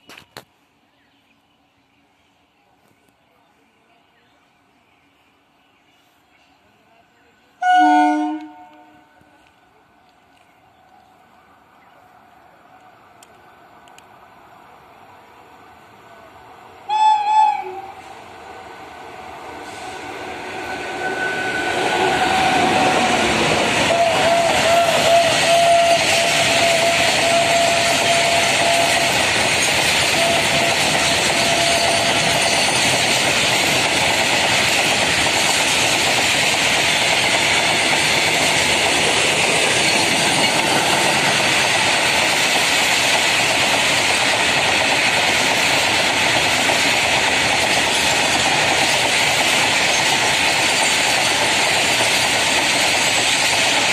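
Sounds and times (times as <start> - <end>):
freight train wheels clattering: 20.7 - 53.9.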